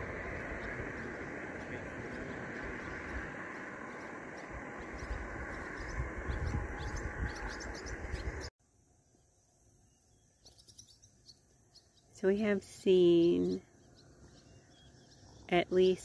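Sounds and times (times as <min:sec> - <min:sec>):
rushing outdoor noise: 0:00.0 - 0:08.5
small birds chirping: 0:00.0 - 0:16.0.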